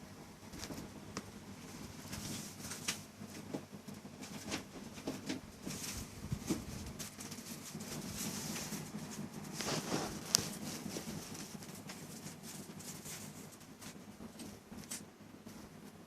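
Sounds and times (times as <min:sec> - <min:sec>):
dog paws pattering and scuffling: 0:00.4 - 0:16.0.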